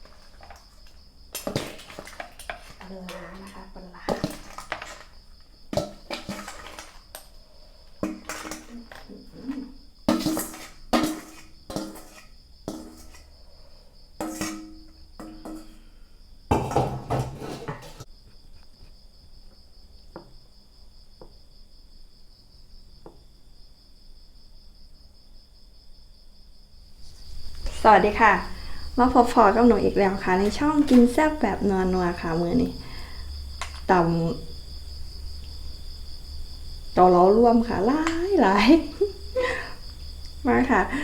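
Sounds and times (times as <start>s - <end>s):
insects chirping: 0.0s - 41.0s
dishes and utensils clattering: 16.5s - 18.1s.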